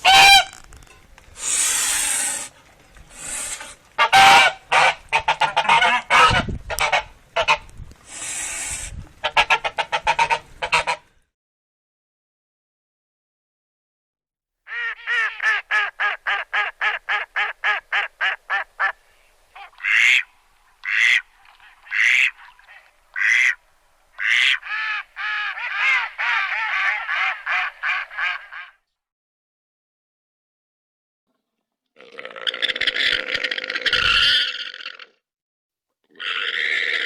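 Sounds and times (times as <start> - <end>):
duck quacking: 0.0 - 0.6, 4.0 - 7.6, 9.2 - 11.1, 14.7 - 19.0, 19.6 - 21.2, 21.8 - 23.6, 24.2 - 28.8.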